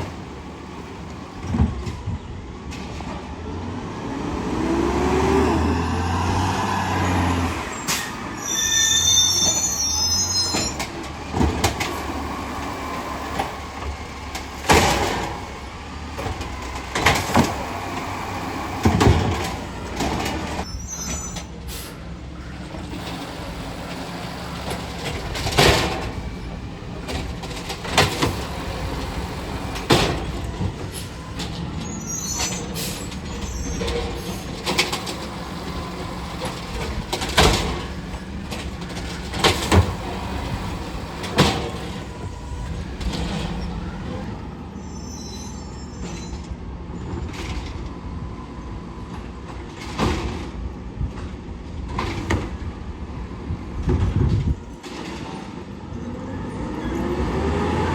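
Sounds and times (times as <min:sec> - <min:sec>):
bins banging and clanking: 0:04.6 - 0:44.2, 0:49.0 - 0:55.7
high squeals: 0:05.6 - 0:11.0, 0:20.6 - 0:22.1, 0:30.9 - 0:34.6, 0:42.4 - 0:46.5
garbage truck engine running: 0:09.4 - 0:45.1.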